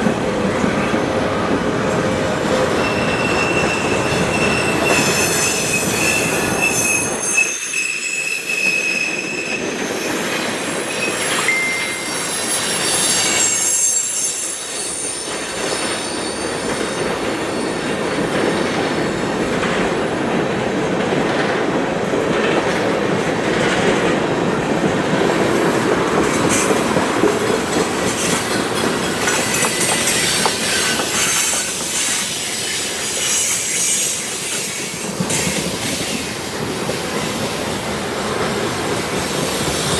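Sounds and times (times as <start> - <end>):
train wheels rumbling on rails: 0.0 - 39.9
wheel flange squeals: 2.5 - 18.3.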